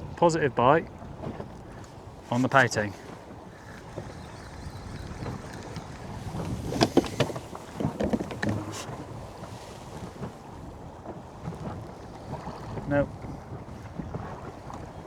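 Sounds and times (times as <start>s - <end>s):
water moving around boat: 0.0s - 15.0s
wind buffeting microphone: 0.0s - 15.0s
sharp clicks and knocks: 5.1s - 8.9s.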